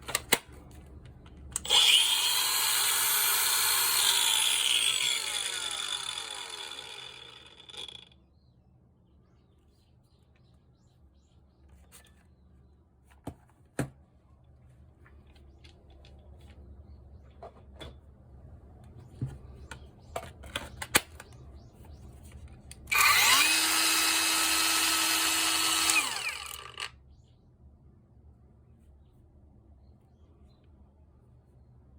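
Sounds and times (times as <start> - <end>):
power tool motor whine: 1.6 - 8.0, 22.9 - 26.9.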